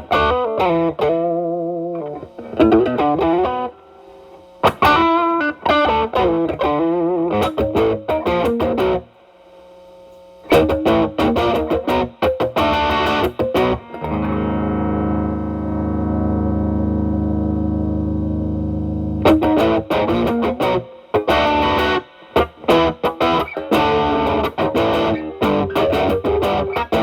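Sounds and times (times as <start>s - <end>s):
distorted electric guitar lead: 0.0s - 4.0s, 4.6s - 9.1s, 10.5s - 27.0s
guitar chord ringing: 10.5s - 27.0s.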